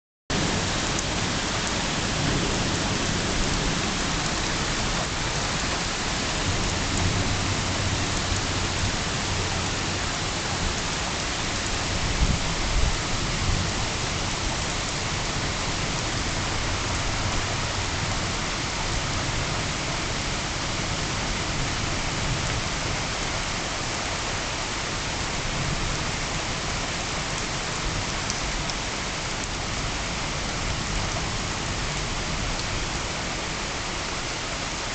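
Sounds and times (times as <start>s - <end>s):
thunder rumbling: 0.3s - 14.4s
heavy rain falling: 0.3s - 34.9s.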